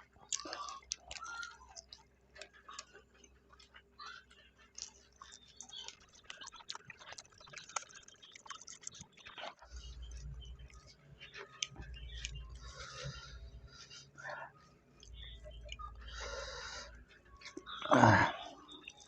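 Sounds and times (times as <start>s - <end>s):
people chewing: 0.0s - 19.0s
small clicks and crackles: 0.0s - 19.0s
low hum: 9.7s - 19.0s.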